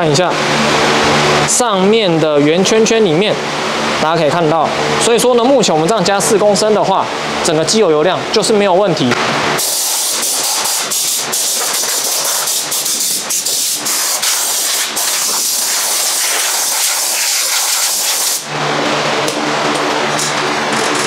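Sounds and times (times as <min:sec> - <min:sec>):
loud pressurized hiss: 0:09.6 - 0:18.5.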